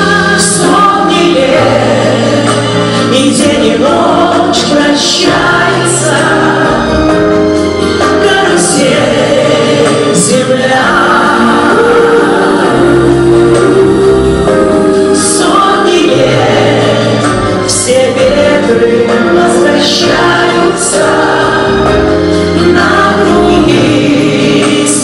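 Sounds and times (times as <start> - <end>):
group singing in chorus: 0.0 - 25.0
instrumental accompaniment: 0.0 - 25.0.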